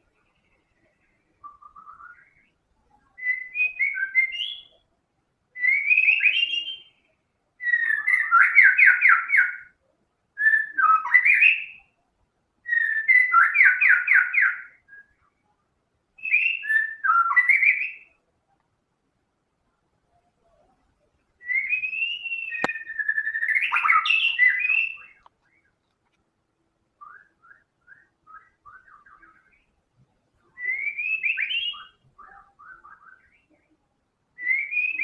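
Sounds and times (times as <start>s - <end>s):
bird singing whistled phrases: 1.3s - 4.8s, 5.6s - 9.8s, 10.4s - 11.9s, 12.6s - 15.4s, 16.2s - 18.2s, 21.4s - 25.7s, 27.0s - 29.8s, 30.4s - 33.6s, 34.4s - 35.0s.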